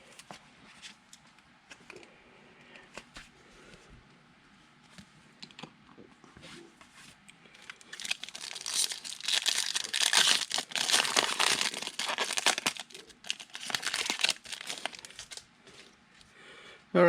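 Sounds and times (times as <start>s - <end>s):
foil wrapper tearing and crinkling: 7.6s - 15.5s.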